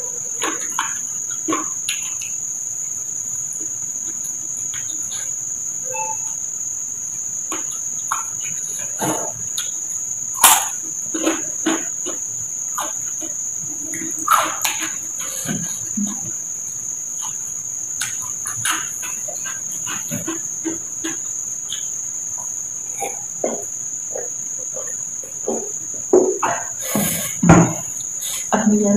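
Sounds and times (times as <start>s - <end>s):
chewing and lip-smacking: 0.2s - 5.4s, 7.3s - 26.7s
steady high-pitched drone: 5.8s - 6.7s.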